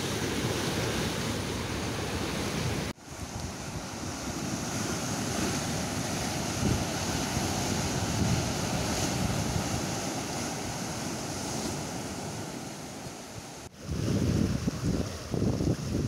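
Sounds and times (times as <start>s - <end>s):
wind buffeting microphone: 2.2s - 12.7s, 13.7s - 16.0s.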